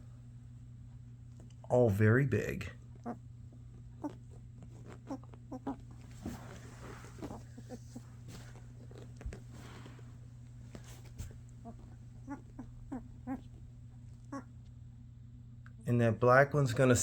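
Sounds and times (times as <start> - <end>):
steady low hum: 0.0 - 17.0
puppies squeaking and grunting: 4.0 - 9.8, 11.5 - 14.5.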